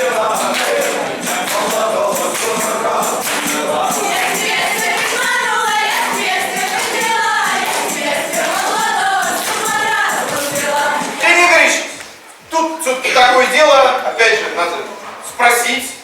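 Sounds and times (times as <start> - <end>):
group singing folk song: 0.0 - 12.2.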